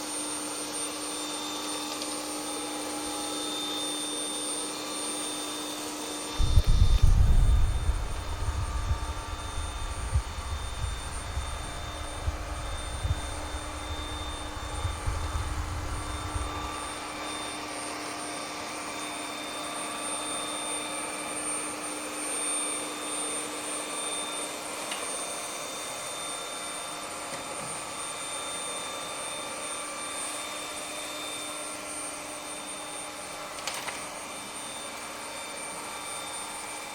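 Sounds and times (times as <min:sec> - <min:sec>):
robot vacuum fan whine and hiss: 0:00.0 - 0:36.9
low rumble: 0:06.4 - 0:16.8.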